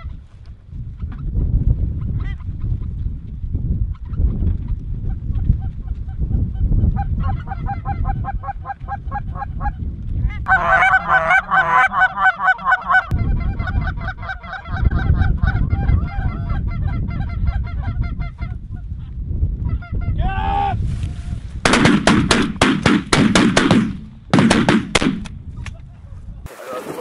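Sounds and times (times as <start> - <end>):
wind rumble on microphone: 0.0 - 27.0
geese honking: 10.5 - 17.7.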